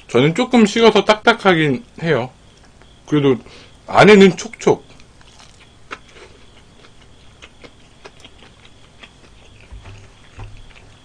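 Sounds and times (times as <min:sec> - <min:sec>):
chewing crunchy food: 0:04.8 - 0:11.0.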